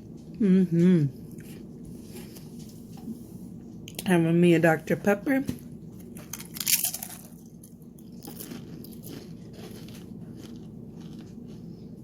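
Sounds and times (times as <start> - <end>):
chips crunching while chewed: 6.0 - 12.0.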